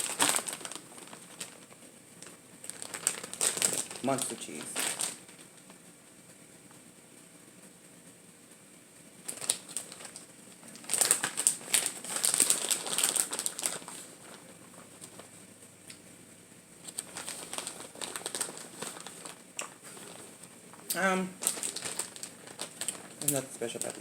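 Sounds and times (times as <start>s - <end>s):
plastic bag crinkling: 0.0s - 5.8s, 9.2s - 15.4s, 16.8s - 24.0s.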